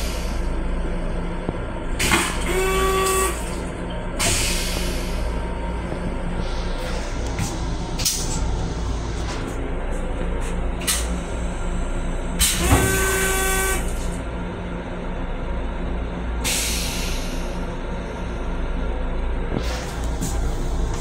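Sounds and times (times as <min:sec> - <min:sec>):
train running low rumble: 0:00.0 - 0:21.0
loud hiss of air: 0:04.2 - 0:05.4, 0:16.4 - 0:17.6.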